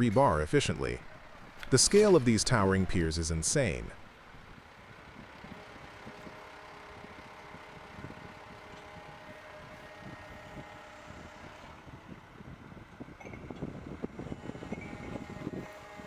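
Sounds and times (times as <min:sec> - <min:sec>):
machinery rumble: 0:00.0 - 0:16.0
wind noise on microphone: 0:04.4 - 0:16.0.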